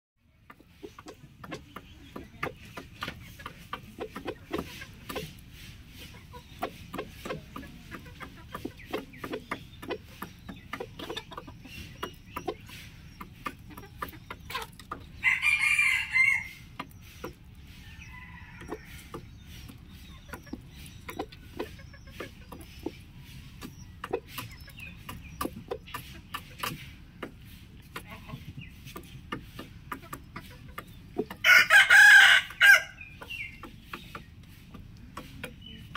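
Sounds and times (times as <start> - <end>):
chickens clucking: 0.2 - 35.9
rooster crowing: 15.2 - 16.6, 31.4 - 33.0.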